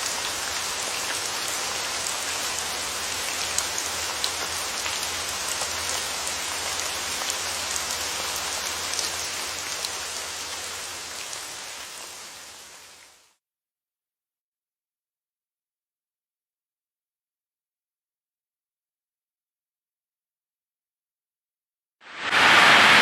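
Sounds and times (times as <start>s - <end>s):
rain falling: 0.0s - 13.3s, 22.0s - 23.0s.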